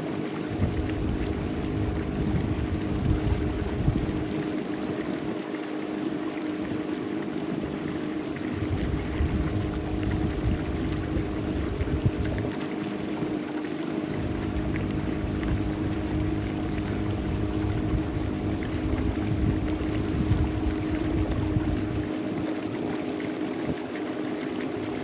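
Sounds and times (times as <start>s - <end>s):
boat engine humming: 0.0s - 25.0s
rushing water: 0.0s - 25.0s
uneven low rumble: 8.6s - 12.6s, 14.1s - 22.1s.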